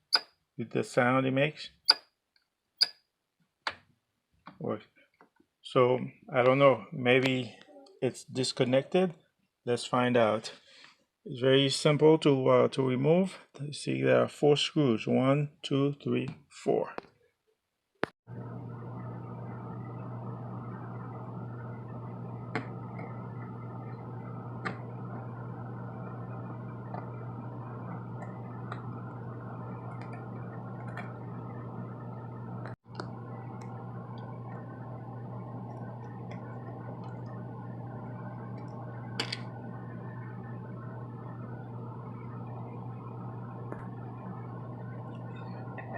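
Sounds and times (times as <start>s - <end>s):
low electrical hum: 18.3s - 45.9s.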